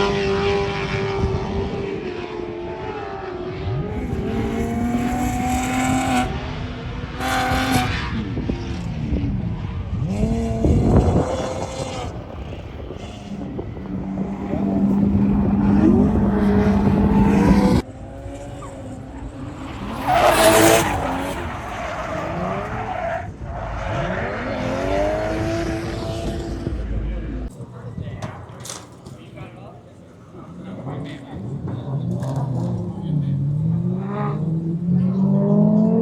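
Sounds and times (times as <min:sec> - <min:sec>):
car engines revving: 0:00.0 - 0:36.0
tyres squealing and skidding: 0:10.0 - 0:26.6.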